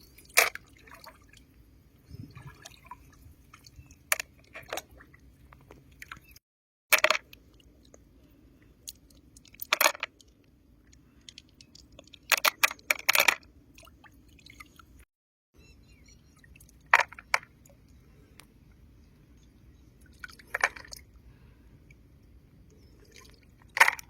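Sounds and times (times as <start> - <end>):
low background hum: 15.6 - 24.0.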